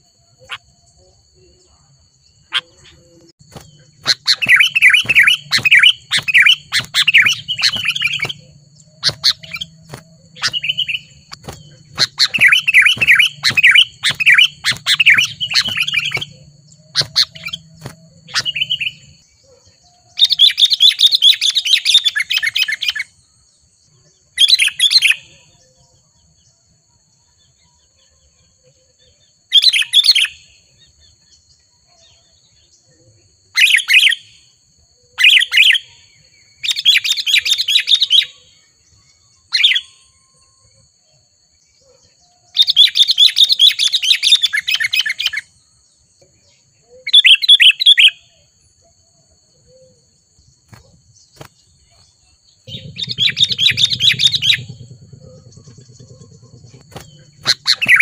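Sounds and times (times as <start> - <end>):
bulbul chattering calls: 2.5 - 19.2, 52.6 - 58.0.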